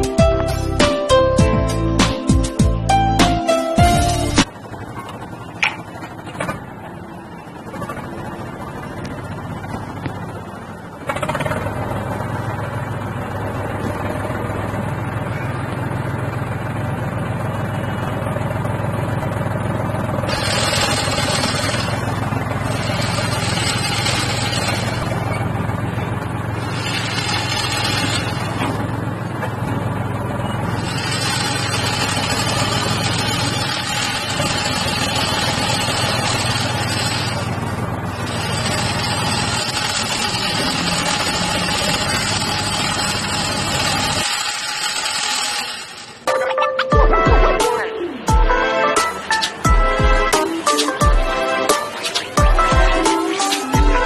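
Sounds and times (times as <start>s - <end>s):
motor droning: 20.1s - 46.3s.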